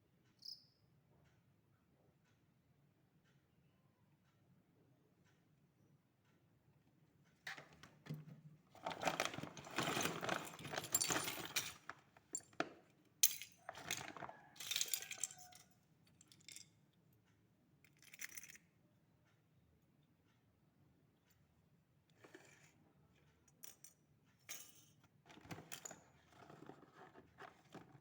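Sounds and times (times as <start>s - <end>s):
small metal objects clinking: 9.0s - 12.5s, 13.2s - 16.7s.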